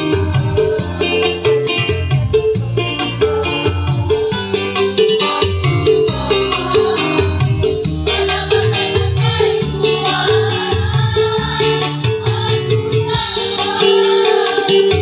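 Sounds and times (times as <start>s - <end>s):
instrumental accompaniment: 0.0s - 15.0s
choir singing: 6.1s - 15.0s.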